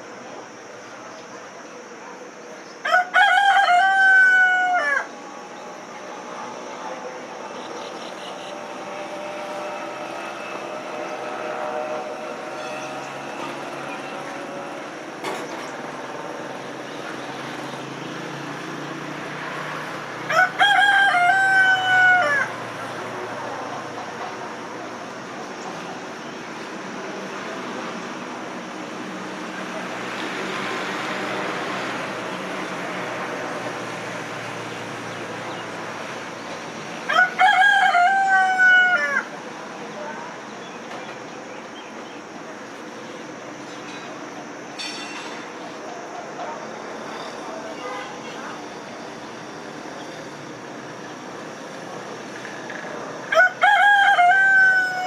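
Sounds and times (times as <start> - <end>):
rooster crowing: 2.8 - 5.8, 20.2 - 23.0, 37.1 - 39.4, 53.2 - 55.0.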